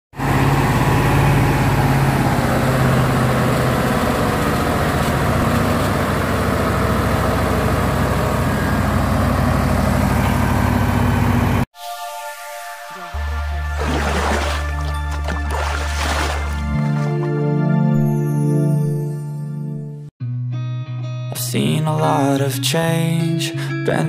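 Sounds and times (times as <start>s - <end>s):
truck engine idling: 0.2s - 11.7s.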